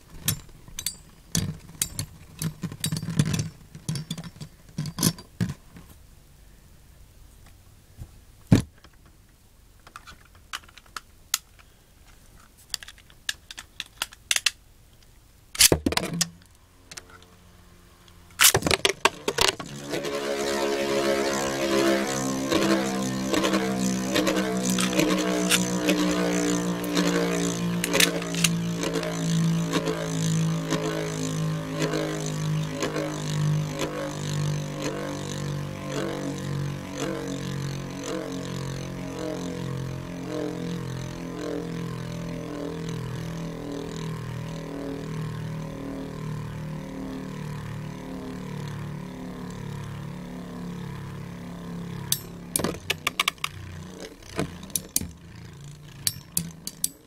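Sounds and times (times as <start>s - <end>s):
spinning tops whirring: 18.3s - 57.0s
sharp clacks of spinning tops: 56.0s - 57.0s.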